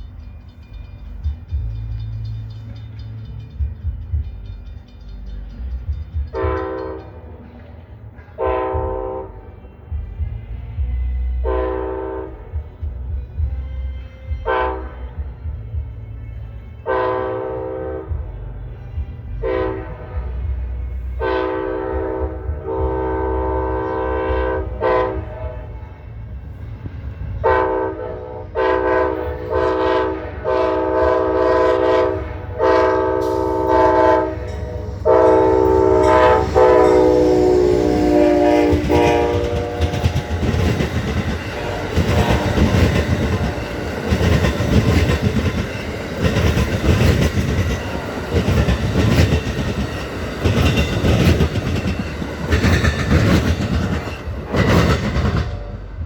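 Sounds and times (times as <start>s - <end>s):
train wheels clattering on rails: 0.0s - 11.5s, 12.4s - 56.0s
locomotive engine rumble: 0.0s - 56.0s
locomotive horn blasts: 6.4s - 7.4s, 8.3s - 12.7s, 13.5s - 15.5s, 16.4s - 18.5s, 19.4s - 26.0s, 27.4s - 45.5s.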